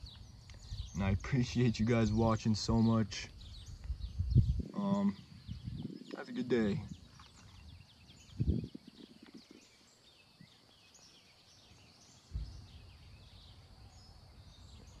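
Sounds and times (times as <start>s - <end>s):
small birds chirping: 0.0s - 15.0s
dull thump: 12.3s - 12.8s.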